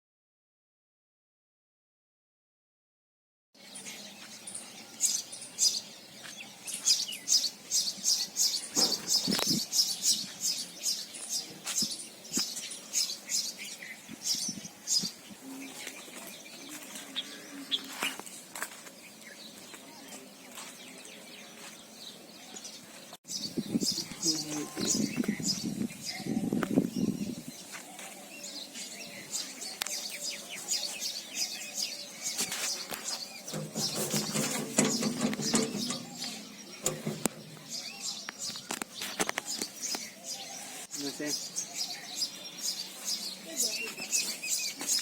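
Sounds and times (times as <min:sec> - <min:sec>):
small birds chirping: 0:03.6 - 0:45.0
thump: 0:08.8 - 0:09.5.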